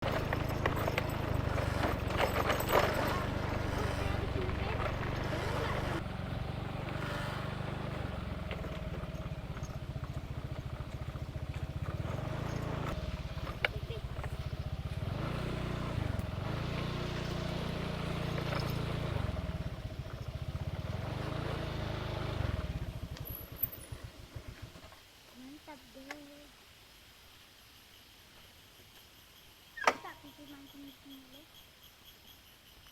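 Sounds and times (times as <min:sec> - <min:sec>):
small engine humming: 0:00.0 - 0:25.0.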